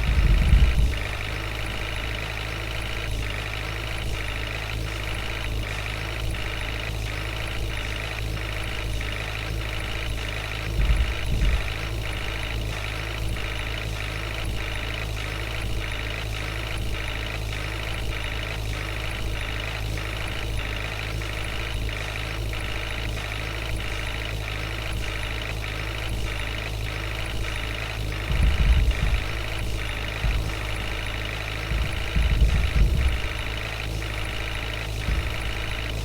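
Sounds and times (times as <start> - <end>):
heavy diesel engine running: 0.0 - 36.0
loud low thump: 10.8 - 12.0, 28.2 - 36.0.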